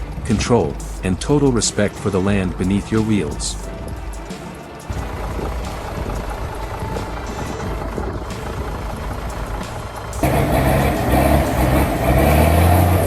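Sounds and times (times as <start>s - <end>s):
music: 0.0s - 13.0s
outdoor noise: 0.0s - 13.0s
truck engine droning: 0.0s - 13.0s.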